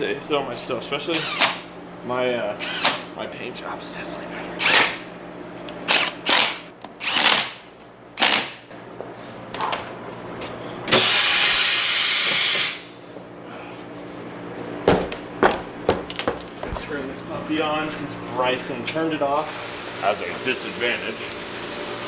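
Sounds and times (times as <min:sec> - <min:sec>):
impact wrench bursts: 0:01.1 - 0:01.7, 0:02.6 - 0:03.1, 0:04.6 - 0:05.0, 0:05.8 - 0:08.6, 0:10.9 - 0:13.0.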